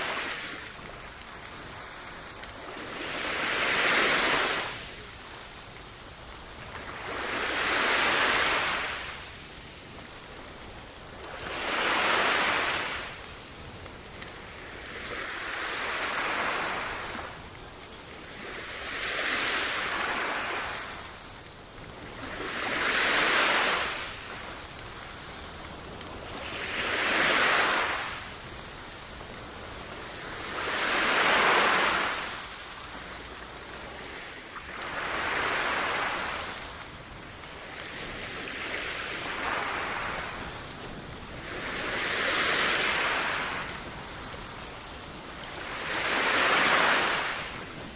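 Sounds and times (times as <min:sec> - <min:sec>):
sea waves washing onto beach: 0:00.0 - 0:47.9.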